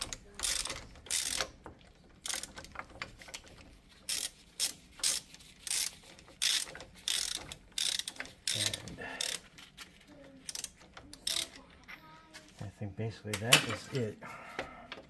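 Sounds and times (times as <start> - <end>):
ratchet wrench clicking: 0.0 - 1.6, 2.2 - 2.9, 4.1 - 9.4, 10.4 - 11.6.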